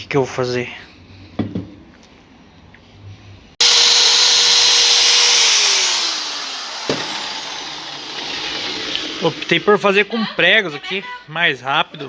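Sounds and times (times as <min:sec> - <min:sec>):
electric drill running: 0:03.6 - 0:09.8.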